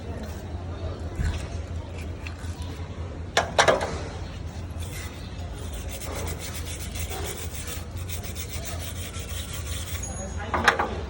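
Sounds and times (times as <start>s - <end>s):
steady low hum: 0.0s - 10.2s
scrubbing strokes on metal: 4.2s - 10.4s.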